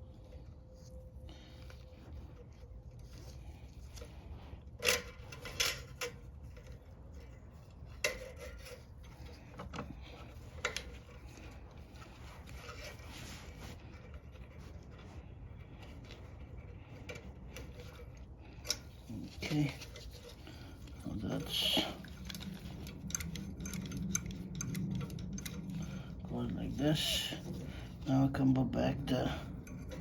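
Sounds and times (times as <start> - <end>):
low steady hum: 0.0 - 30.0
small metal parts clicking: 4.8 - 11.6, 17.0 - 26.3.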